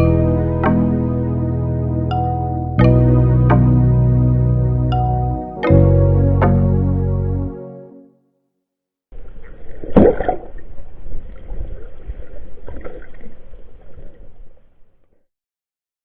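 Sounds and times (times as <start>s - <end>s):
water splash: 9.2s - 14.3s
muffled water sloshing and gurgling: 9.2s - 14.6s.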